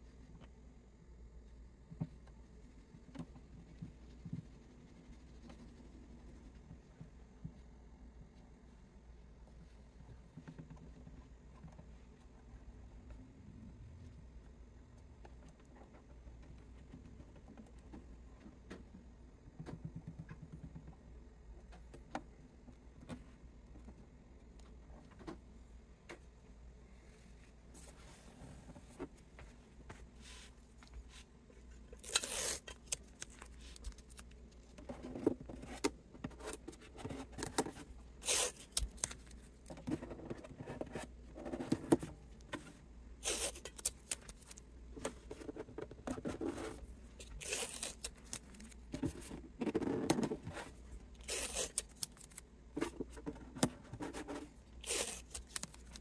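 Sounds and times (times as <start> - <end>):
quiet handling noises: 0.1 - 56.0
scraping and ripping strokes: 32.0 - 34.2, 38.2 - 39.2, 43.2 - 44.6, 47.2 - 48.6, 51.2 - 52.4, 54.8 - 56.0.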